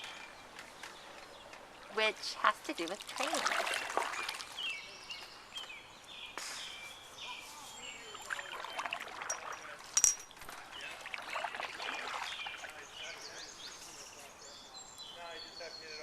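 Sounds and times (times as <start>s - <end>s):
swallows twittering: 10.7s - 16.0s.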